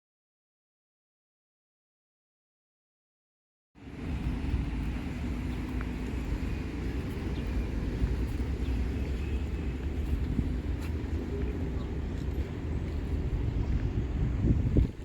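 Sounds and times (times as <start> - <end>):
low outdoor rumble: 3.8 - 15.0.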